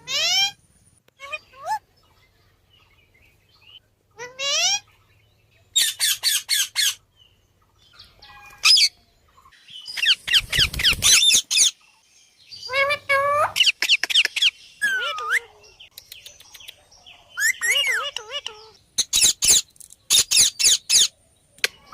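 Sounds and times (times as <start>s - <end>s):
parakeets squawking: 0.0s - 0.6s, 4.2s - 4.9s, 5.8s - 7.0s, 9.9s - 11.8s, 12.6s - 15.5s, 17.4s - 21.1s.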